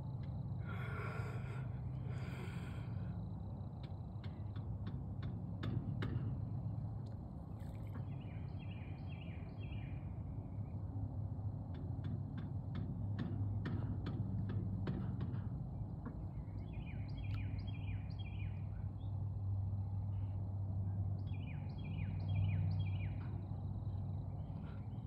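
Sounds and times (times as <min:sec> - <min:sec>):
steady low rumble: 0:00.0 - 0:05.6
songbird singing: 0:00.0 - 0:12.2, 0:15.7 - 0:25.0.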